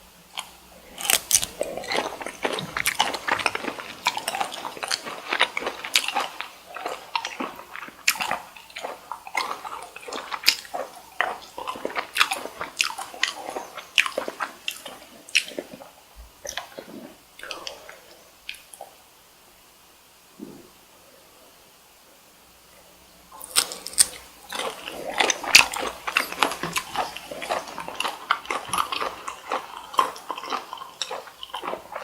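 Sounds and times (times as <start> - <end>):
biting and chewing: 0.3 - 17.8, 23.4 - 32.0.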